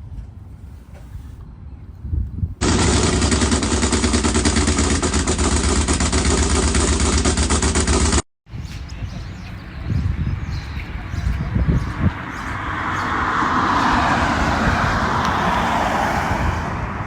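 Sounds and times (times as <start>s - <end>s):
loud engine with pulsing exhaust: 2.6s - 8.3s.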